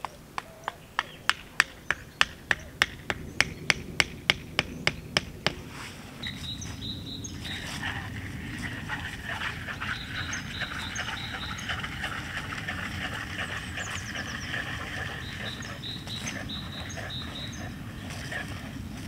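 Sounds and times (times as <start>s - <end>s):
bird trill: 0.0s - 5.2s, 6.2s - 7.9s, 9.0s - 12.2s, 13.4s - 18.4s
small birds chirping: 0.0s - 19.0s
low background rumble: 0.5s - 19.0s.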